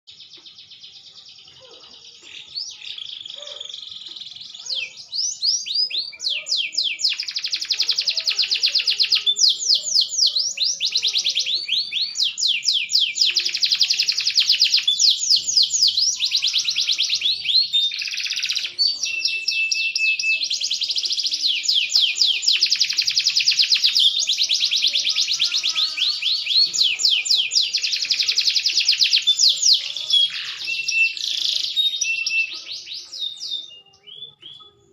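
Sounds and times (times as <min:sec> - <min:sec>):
canary singing trills: 0:00.1 - 0:34.9.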